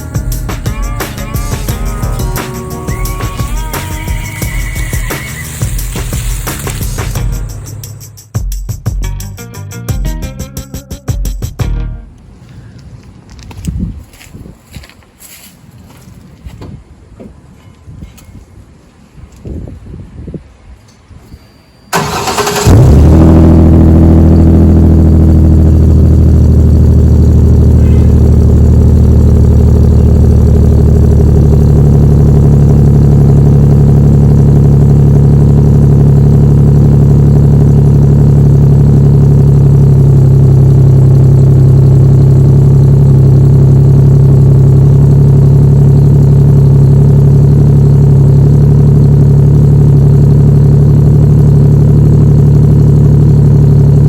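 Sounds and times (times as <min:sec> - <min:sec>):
truck engine idling: 0:00.0 - 0:08.2, 0:22.0 - 0:54.0.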